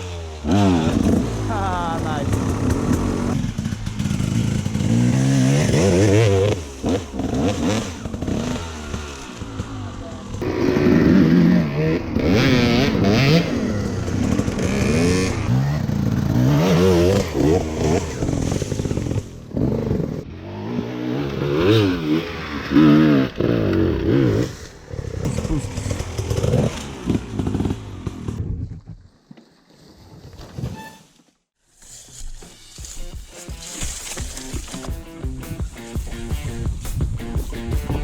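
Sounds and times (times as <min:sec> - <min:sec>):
dirt bike engine revving: 0:00.0 - 0:28.4.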